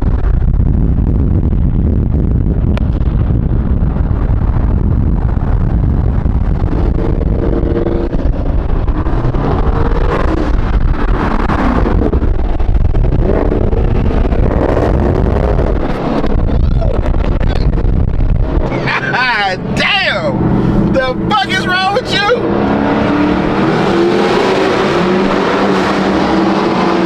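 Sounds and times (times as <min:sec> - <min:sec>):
wind buffeting microphone: 0:00.0 - 0:21.0
car engine: 0:00.0 - 0:27.0.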